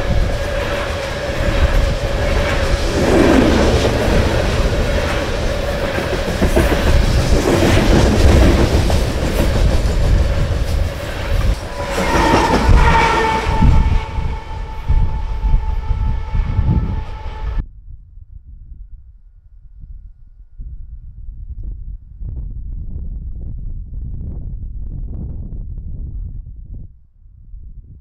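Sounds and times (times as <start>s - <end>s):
train heavy rumble: 0.0s - 17.6s.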